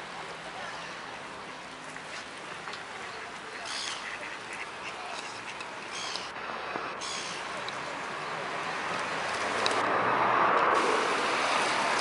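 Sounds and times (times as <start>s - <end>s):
outdoor background rush: 0.0s - 12.0s
ducks quacking: 2.4s - 6.3s.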